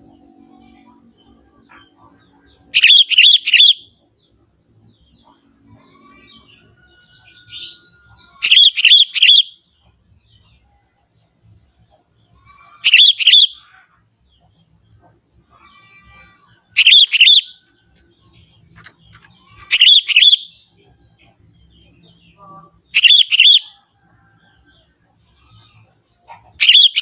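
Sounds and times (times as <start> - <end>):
bulbul calling: 1.7 - 3.9, 8.2 - 9.6, 12.8 - 13.7, 16.8 - 20.6, 22.9 - 23.8, 26.6 - 27.0.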